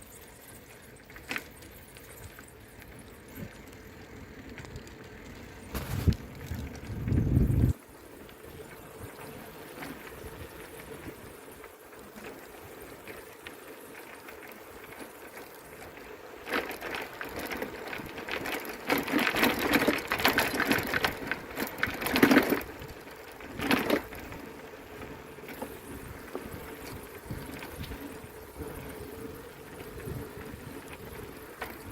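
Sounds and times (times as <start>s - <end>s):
bicycle rapid mechanical clicking: 0.0s - 31.9s
bicycle riding noise: 0.0s - 31.9s.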